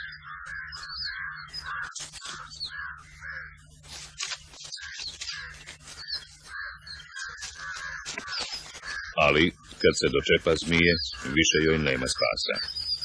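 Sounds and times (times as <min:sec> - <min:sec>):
birds cawing harshly: 0:00.0 - 0:13.0
low steady hum: 0:00.0 - 0:13.0.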